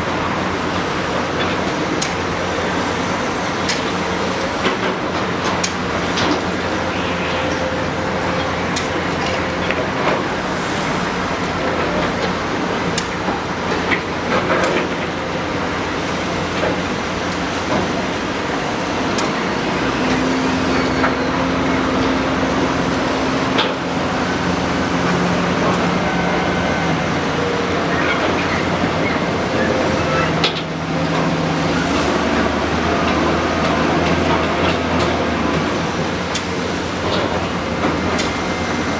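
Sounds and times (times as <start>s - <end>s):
excavator diesel engine running: 0.0s - 38.9s
steady high tone: 6.4s - 11.6s, 20.6s - 31.9s.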